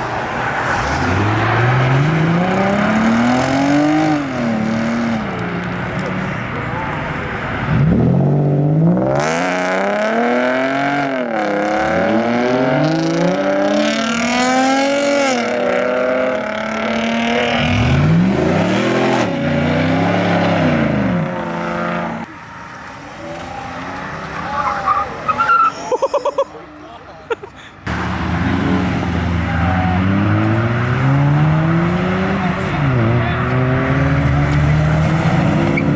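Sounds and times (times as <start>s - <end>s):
car engine revving: 0.0s - 25.6s, 27.8s - 35.9s
tyre squeal: 22.3s - 25.9s.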